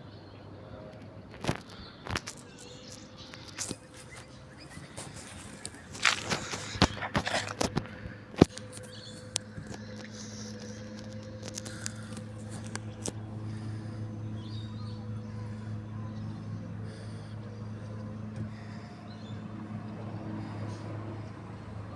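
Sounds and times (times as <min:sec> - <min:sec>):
garbage truck engine humming: 0:00.4 - 0:21.9.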